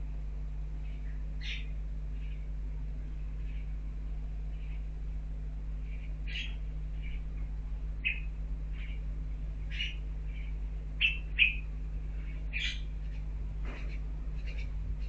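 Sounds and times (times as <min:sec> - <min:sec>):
bird call notes: 0:09.7 - 0:11.7, 0:12.5 - 0:14.8.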